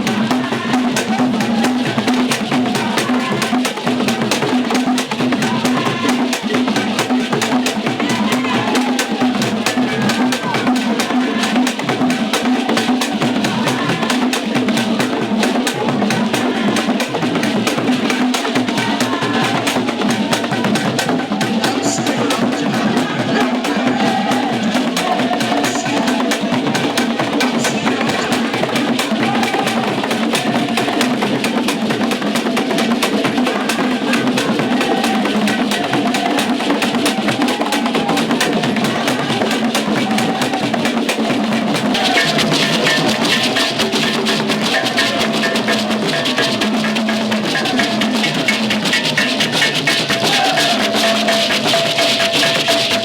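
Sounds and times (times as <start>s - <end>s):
drums beating fast rhythm: 0.0s - 53.0s
wood block beating: 34.4s - 53.0s.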